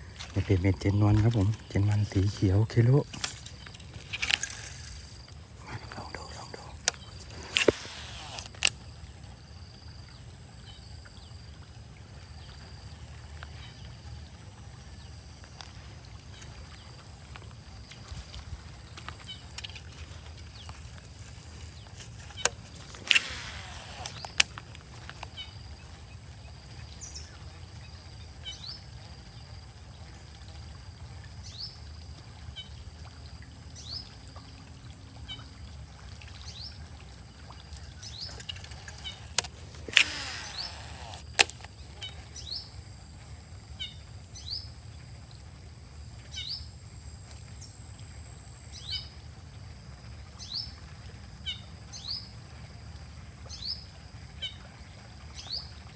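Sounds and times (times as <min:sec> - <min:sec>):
swishing with sharp clicks: 0:00.2 - 0:08.7, 0:19.6 - 0:24.6, 0:38.0 - 0:41.7
high insect-like drone: 0:17.9 - 0:24.6, 0:37.9 - 0:41.7.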